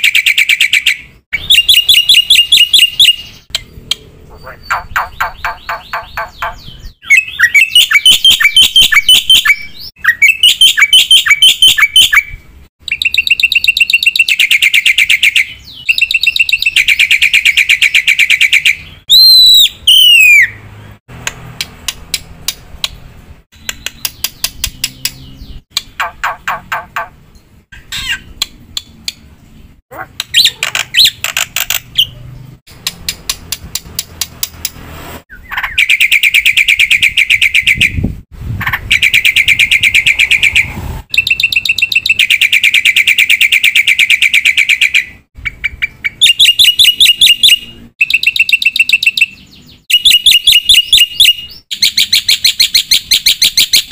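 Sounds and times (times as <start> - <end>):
fast rattling bird phrases: 0.0 - 20.5, 23.7 - 27.2, 27.8 - 28.4, 29.9 - 32.2, 38.6 - 53.9.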